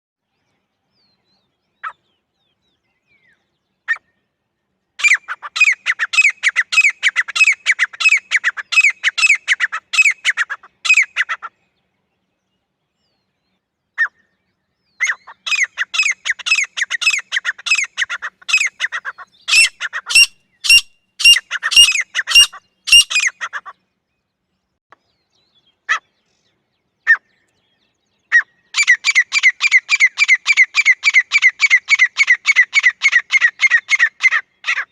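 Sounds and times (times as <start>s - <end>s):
francolin calling harsh notes: 19.5s - 23.3s.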